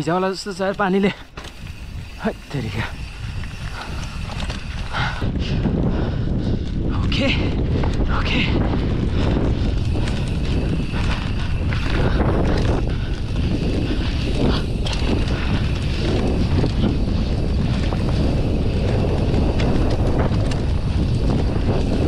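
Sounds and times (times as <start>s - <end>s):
tyre noise: 0.0s - 22.0s
wind buffeting microphone: 0.0s - 22.0s
bike knocks and rattles: 0.4s - 22.0s.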